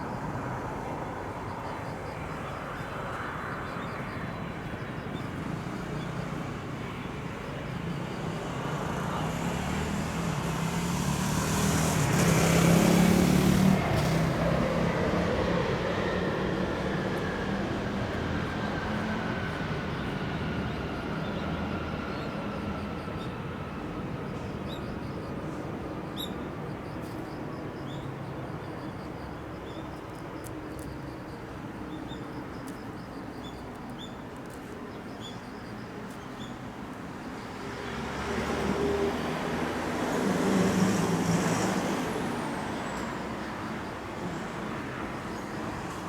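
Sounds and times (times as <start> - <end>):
vehicle passing: 9.0 - 20.6, 37.5 - 42.8.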